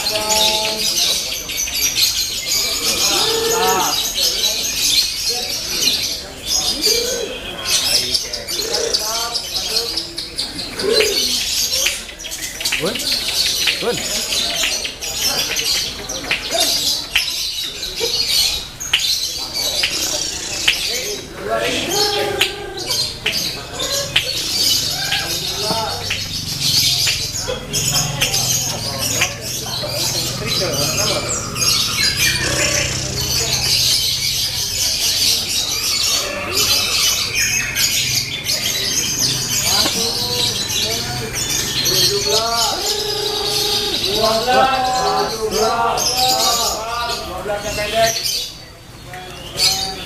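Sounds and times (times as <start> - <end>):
lovebirds chirping and chattering: 0.0 - 50.0.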